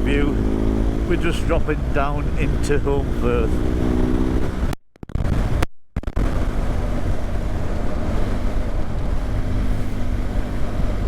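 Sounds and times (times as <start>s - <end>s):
motorcycle engine droning: 0.0s - 4.8s
wind rushing over microphone: 0.0s - 11.0s.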